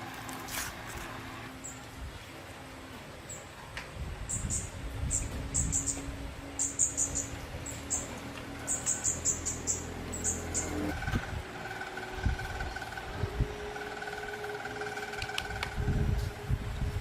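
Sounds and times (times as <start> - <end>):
small birds chirping: 3.2 - 14.2.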